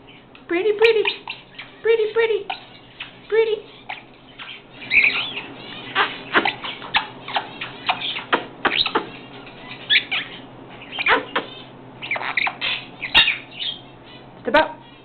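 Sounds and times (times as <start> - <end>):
parrot calls and clicks: 2.5 - 13.8.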